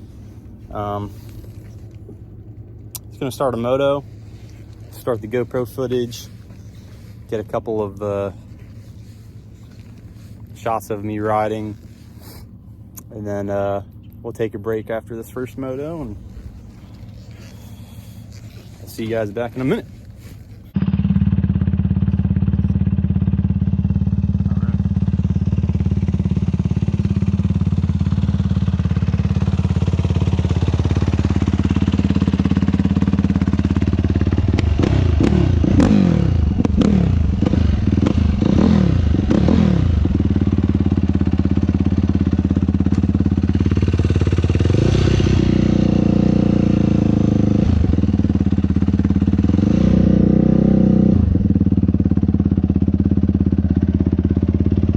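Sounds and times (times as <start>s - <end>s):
quad bike engine revving: 15.5s - 54.9s.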